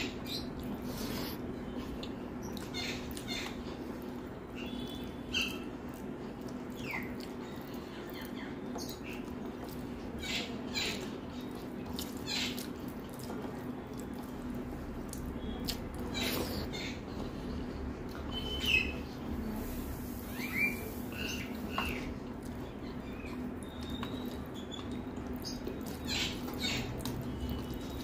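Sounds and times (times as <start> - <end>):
person chewing food: 0.4 - 10.1, 10.8 - 18.3, 21.6 - 28.0
lip smacks and squelchy clicks: 15.0 - 16.6.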